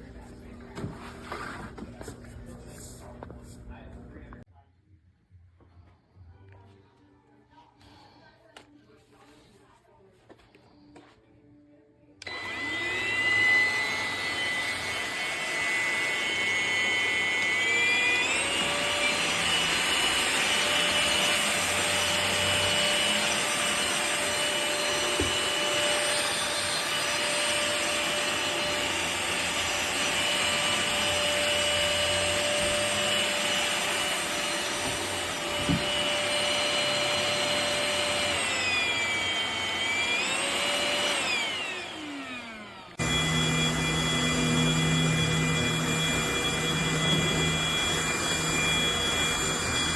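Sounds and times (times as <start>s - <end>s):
stick vacuum whining: 12.2s - 49.9s.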